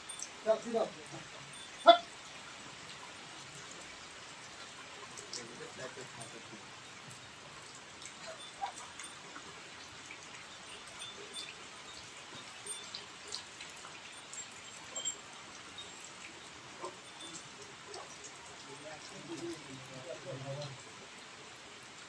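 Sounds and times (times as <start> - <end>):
rain falling: 0.0 - 22.0
drips and taps: 3.7 - 20.0.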